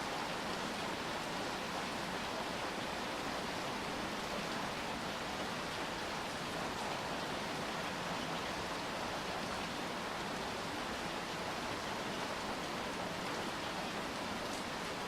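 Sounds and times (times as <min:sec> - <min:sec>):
rain on hard surfaces: 0:00.0 - 0:15.0.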